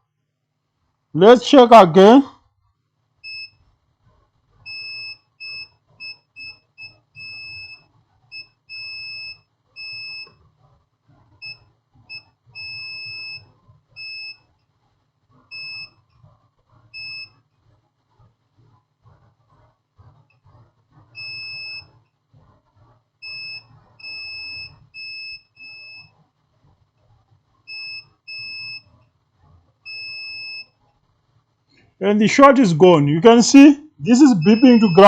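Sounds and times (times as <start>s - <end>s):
multimeter beeping: 4.7s - 10.4s, 11.4s - 14.5s, 15.5s - 16.0s, 17.0s - 17.4s, 21.2s - 22.0s, 23.2s - 26.1s, 27.7s - 28.9s, 29.9s - 30.8s, 34.1s - 35.0s.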